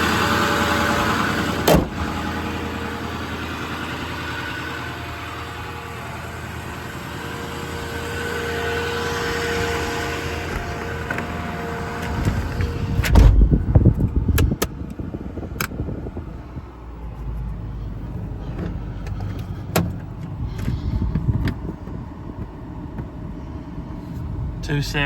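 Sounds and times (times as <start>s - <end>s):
low steady rumble: 0.0s - 25.0s
loud low rumbling thump: 1.6s - 2.1s, 12.0s - 14.6s.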